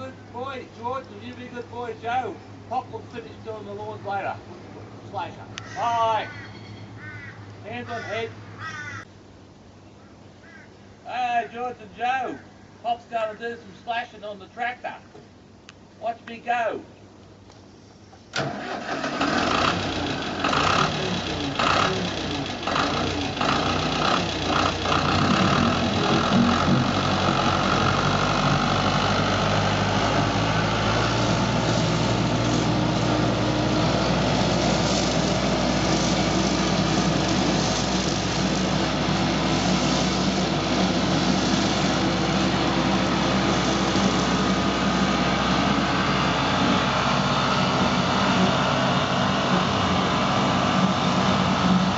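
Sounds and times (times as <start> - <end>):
tractor engine starting and running: 18.3 - 51.9.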